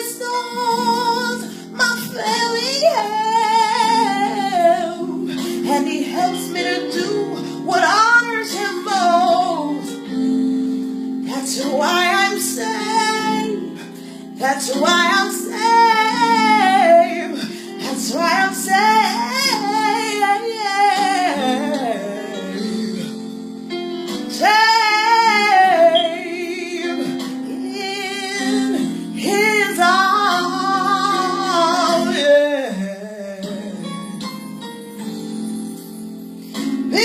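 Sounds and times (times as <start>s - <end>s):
woman singing gospel: 0.0s - 23.3s, 24.3s - 34.3s
instrumental backing: 0.0s - 37.0s.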